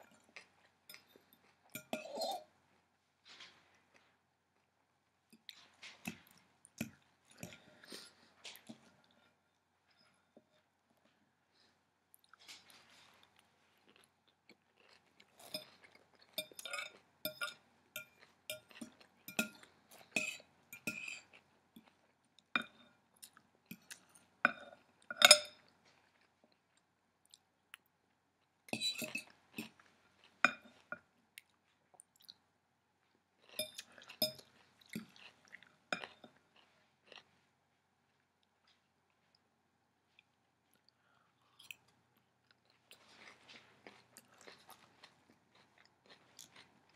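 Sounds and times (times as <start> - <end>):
fork clinking on dish: 24.5 - 25.6
crisp crunching chewing: 33.1 - 37.4, 40.1 - 46.9.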